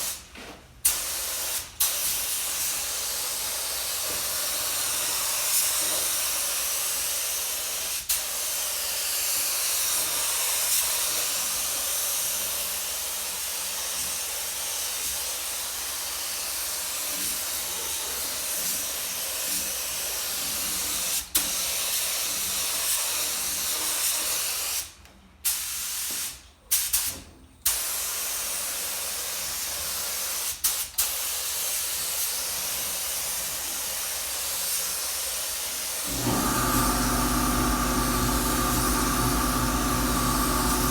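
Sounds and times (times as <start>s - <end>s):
paint spray gun hissing: 36.1s - 40.9s.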